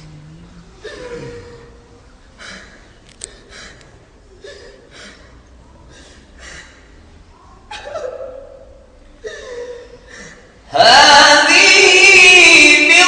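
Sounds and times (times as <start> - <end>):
faint voices and breaths: 0.0 - 7.6
person reciting in chanted style: 10.6 - 13.0.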